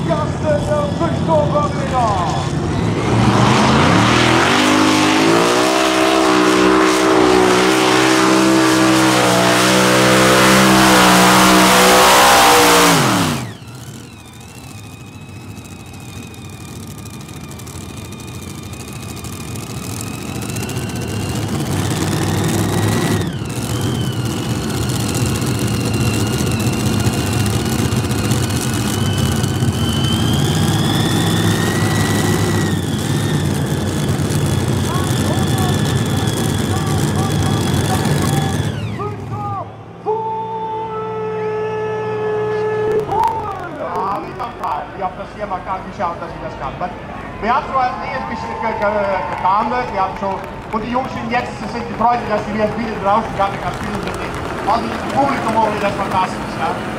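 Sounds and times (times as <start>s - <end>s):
high whine: 0.0s - 44.9s
tractor engine at full power: 0.0s - 56.9s.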